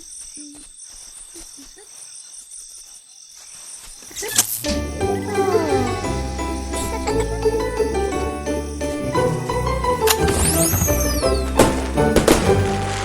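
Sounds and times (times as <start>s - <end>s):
crickets chirping: 0.0s - 13.0s
upbeat music with jingle bells: 4.6s - 13.0s.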